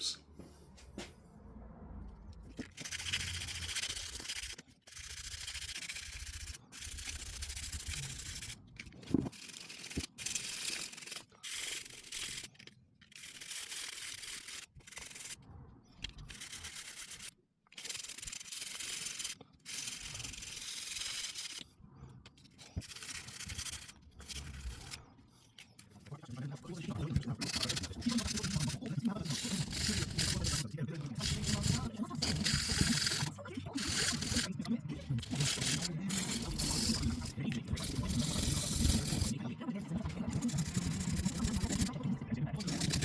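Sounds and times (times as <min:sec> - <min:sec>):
sandpaper rasping strokes: 0:02.8 - 0:08.6, 0:22.6 - 0:25.0, 0:27.4 - 0:34.5, 0:35.2 - 0:39.3, 0:40.3 - 0:41.9, 0:42.6 - 0:43.0.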